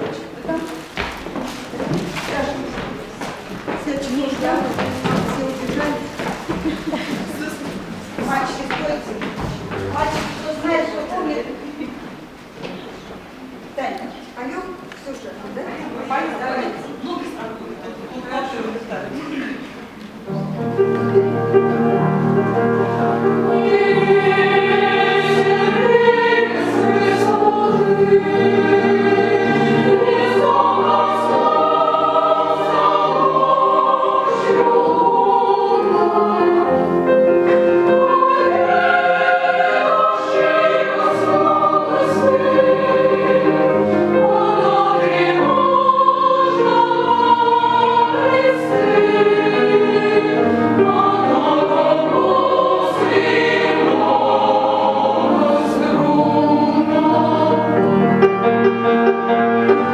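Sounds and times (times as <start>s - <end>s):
choir singing held chords: 20.2s - 59.9s.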